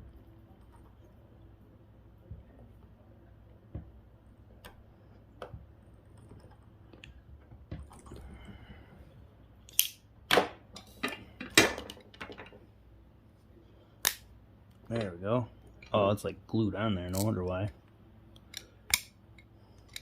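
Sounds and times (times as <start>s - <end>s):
loud sharp snaps: 14.0s - 14.3s.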